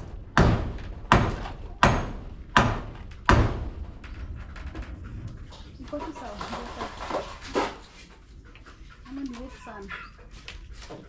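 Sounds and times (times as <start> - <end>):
tool striking wood: 0.4 - 3.8.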